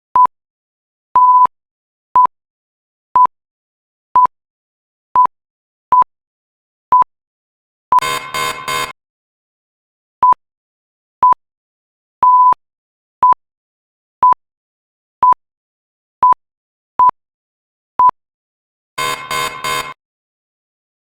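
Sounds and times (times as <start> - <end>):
countdown timer beeping: 8.0 - 8.9, 19.0 - 20.0
harsh buzzer pulses: 8.0 - 9.0, 19.0 - 20.0.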